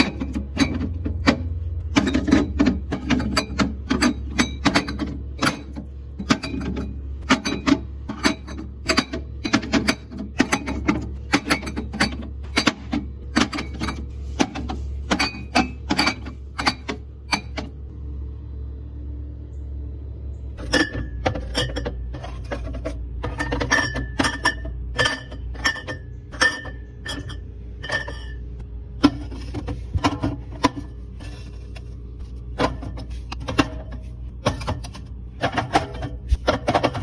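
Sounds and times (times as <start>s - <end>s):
steady low hum: 0.0s - 37.0s
glass bottles clinking: 20.6s - 28.4s.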